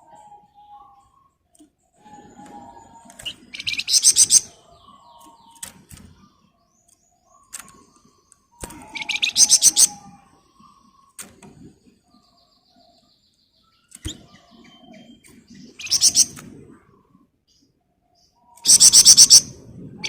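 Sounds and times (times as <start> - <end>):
bird chirps and calls: 2.0 - 11.2, 12.1 - 16.4, 18.2 - 19.5
songbird rattling trills: 2.9 - 4.5, 8.6 - 10.8, 15.5 - 16.4.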